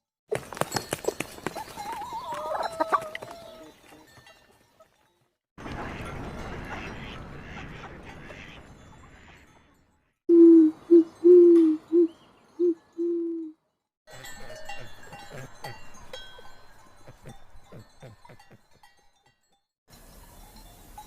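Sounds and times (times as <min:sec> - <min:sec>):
owl hooting: 0:10.3 - 0:13.6.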